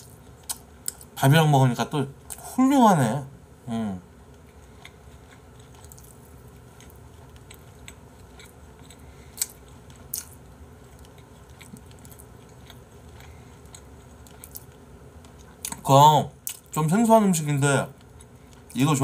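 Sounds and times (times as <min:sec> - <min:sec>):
person chewing food: 0:00.0 - 0:01.2, 0:04.2 - 0:16.8, 0:17.9 - 0:18.8.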